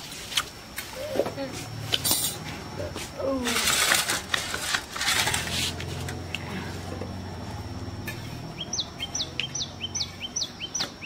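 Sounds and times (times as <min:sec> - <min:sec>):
low steady hum: 0:00.0 - 0:11.0
small bird calling: 0:08.5 - 0:11.0.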